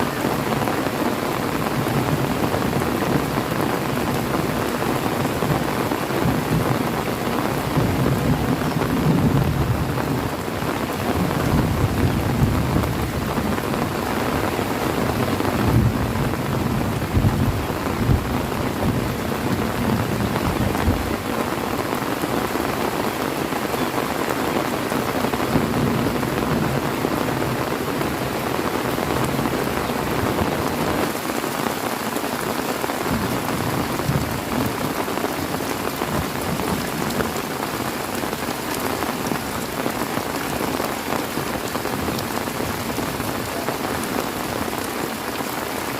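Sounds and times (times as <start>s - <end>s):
heavy rain falling: 0.0s - 45.9s
low thunder rumble: 15.4s - 21.2s.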